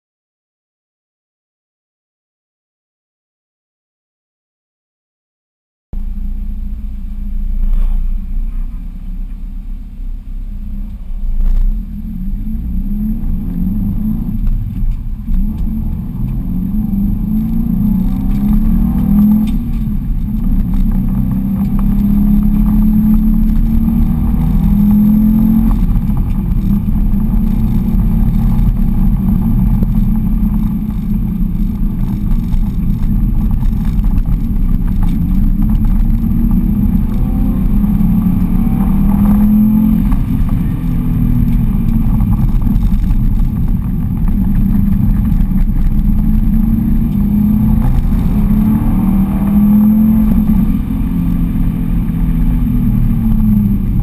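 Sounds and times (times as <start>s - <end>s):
car engine revving: 6.0s - 54.0s.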